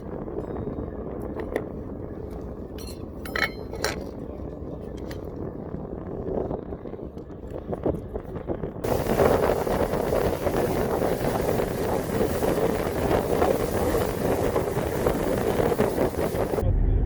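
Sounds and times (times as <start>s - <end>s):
wind buffeting microphone: 0.0s - 17.0s
boat engine running: 8.8s - 17.0s.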